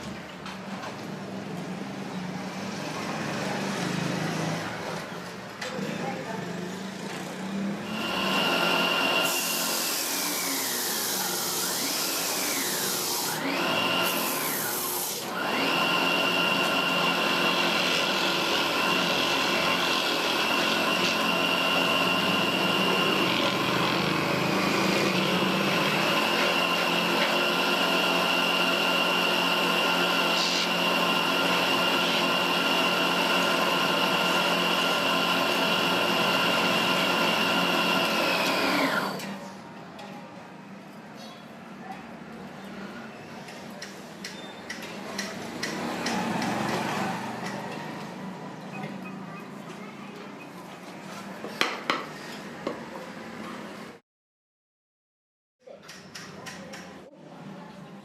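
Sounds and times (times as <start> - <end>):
power tool motor whining: 7.8 - 39.3
blade cutting wood: 7.9 - 39.3.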